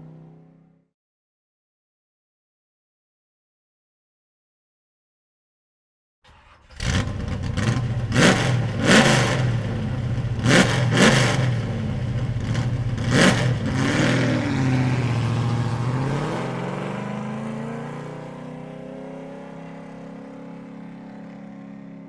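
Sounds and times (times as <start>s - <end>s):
car engine idling and revving: 0.0s - 0.8s, 6.3s - 22.0s.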